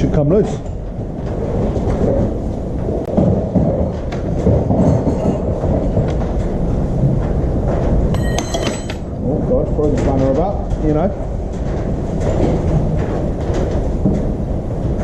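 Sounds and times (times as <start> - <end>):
low rumbling noise: 0.0 - 15.0
metal spanner clattering: 8.2 - 9.1.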